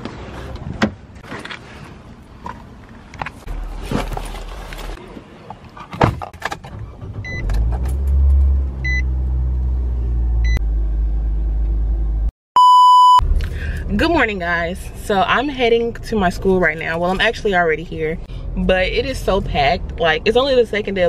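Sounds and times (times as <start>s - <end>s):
car engine starting and idling: 3.1s - 12.3s, 13.2s - 21.0s
loud electronic beep: 12.6s - 13.2s.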